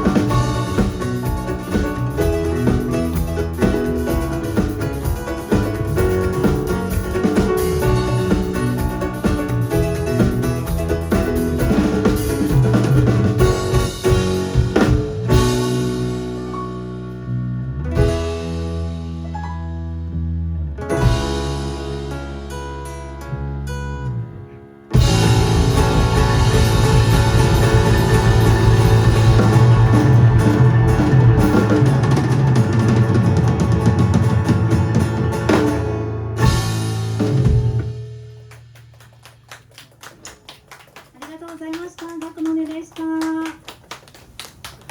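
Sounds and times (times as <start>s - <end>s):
rapid drum strokes: 0.0s - 16.5s, 25.0s - 39.2s
live band music: 0.0s - 41.4s.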